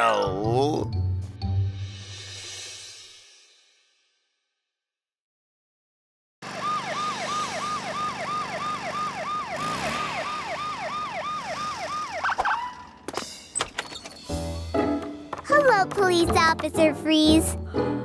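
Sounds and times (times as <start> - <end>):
cartoon police siren: 6.4 - 13.0.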